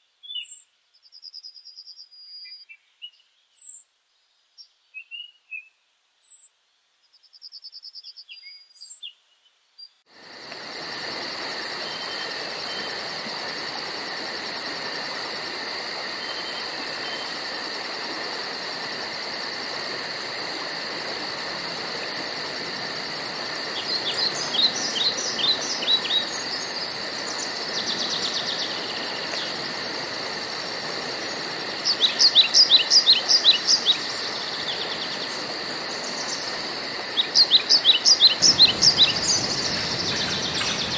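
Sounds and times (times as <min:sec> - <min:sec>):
constant hiss: 0:05.7 - 0:40.9
insect drone with high trilling: 0:10.1 - 0:40.9
bird chirps: 0:37.2 - 0:40.9
birds calling falling notes: 0:38.3 - 0:40.9.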